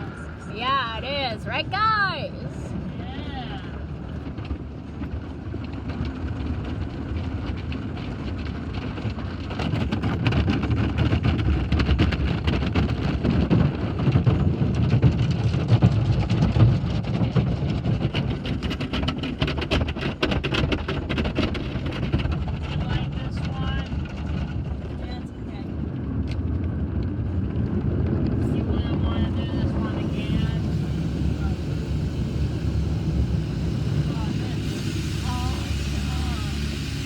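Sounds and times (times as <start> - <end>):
low rumble of washing machinery: 0.0 - 37.0
water spray drumming on car body: 28.8 - 37.0.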